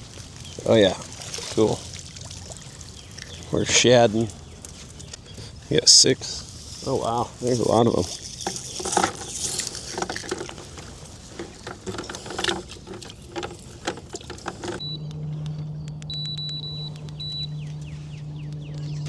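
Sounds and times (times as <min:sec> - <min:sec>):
fish flopping in net: 0:00.0 - 0:03.5, 0:06.4 - 0:14.8
steady low hum: 0:01.8 - 0:19.0
short high-pitched beeps: 0:14.8 - 0:18.0.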